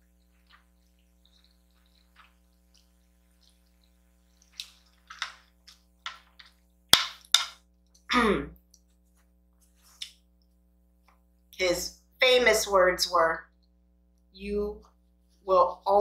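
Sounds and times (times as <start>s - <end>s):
wet chewing and smacking: 0.0s - 9.1s.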